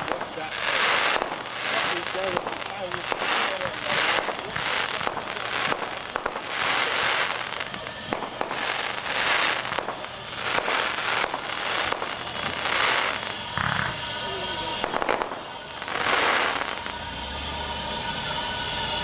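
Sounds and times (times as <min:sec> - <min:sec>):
steam locomotive chuffing: 0:00.0 - 0:19.0.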